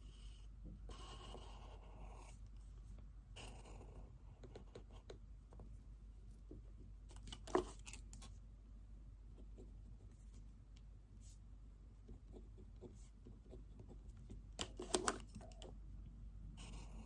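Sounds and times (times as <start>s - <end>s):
pen writing scratches: 0.1s - 2.4s, 3.4s - 5.6s, 16.6s - 17.0s.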